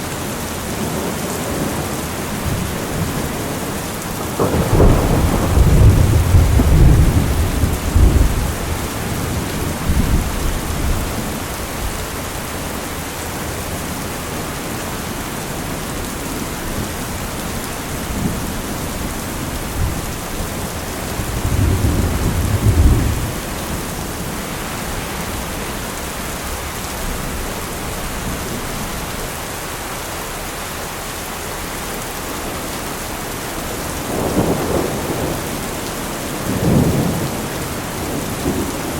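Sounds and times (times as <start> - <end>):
steady rain: 0.0 - 38.9
thunder rumbling: 1.4 - 12.6, 15.6 - 29.5, 33.5 - 38.9.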